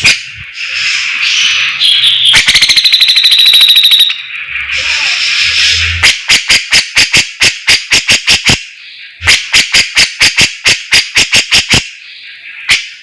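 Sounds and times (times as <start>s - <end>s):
songbird singing sharp repeated notes: 1.4s - 4.6s.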